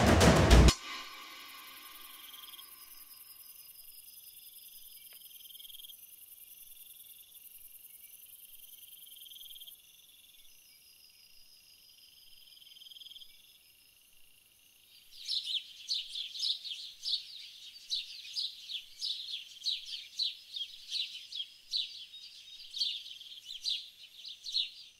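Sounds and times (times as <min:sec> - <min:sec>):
insects trilling: 0:00.8 - 0:24.9
bird chirping: 0:14.9 - 0:24.9.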